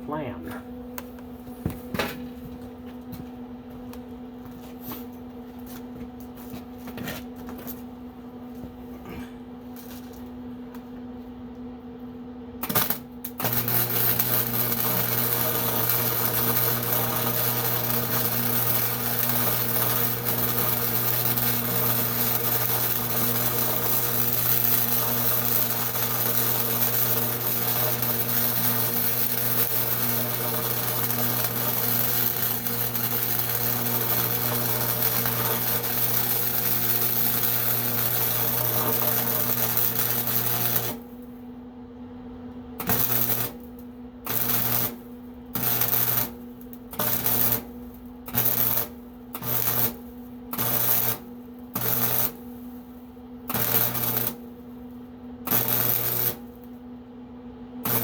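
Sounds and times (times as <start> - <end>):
arc welding crackling and hissing: 12.6 - 41.4, 42.8 - 56.8, 57.8 - 58.0.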